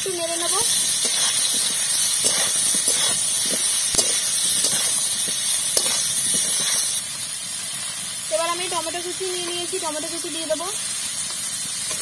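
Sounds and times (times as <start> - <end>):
potatoes frying in hot oil: 0.0 - 12.0
metal spatula scraping pan: 0.6 - 7.0.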